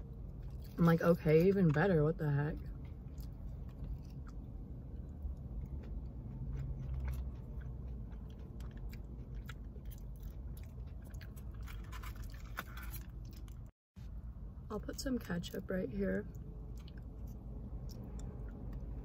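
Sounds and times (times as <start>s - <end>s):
chewing and biting food: 2.6s - 13.7s, 16.3s - 19.0s.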